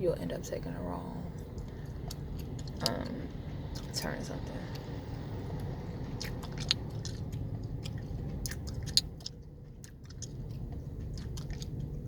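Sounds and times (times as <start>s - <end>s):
idling car cabin rumble: 0.0s - 12.0s
gum chewing smacks: 6.2s - 12.0s.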